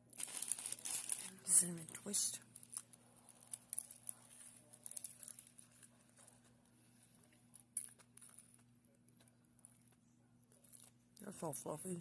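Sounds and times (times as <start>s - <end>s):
soft rustles of food handled: 0.0s - 11.3s.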